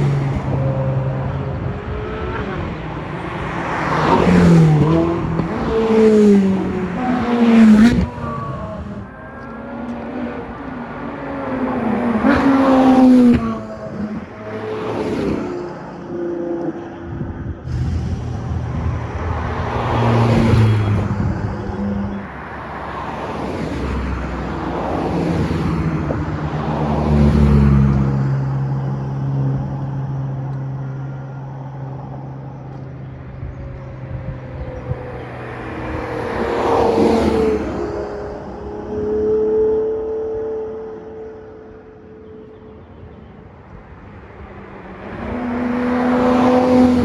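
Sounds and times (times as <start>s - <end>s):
low engine tone: 0.0s - 47.0s
sports cars driving past: 0.0s - 47.0s.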